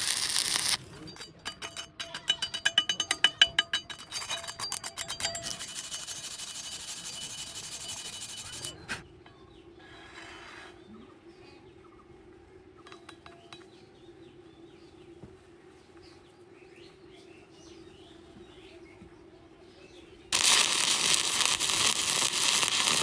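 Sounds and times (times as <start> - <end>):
welding crackling hiss: 0.0 - 0.8, 20.3 - 23.0
metallic taps ringing: 0.4 - 5.8, 12.8 - 13.8.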